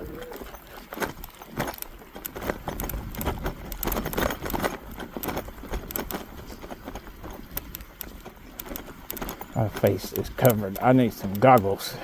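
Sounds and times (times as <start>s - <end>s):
bike rattling over bumps: 0.0s - 12.0s
bike tyres crunching snow: 0.0s - 12.0s
wind rumble on microphone: 2.4s - 8.3s.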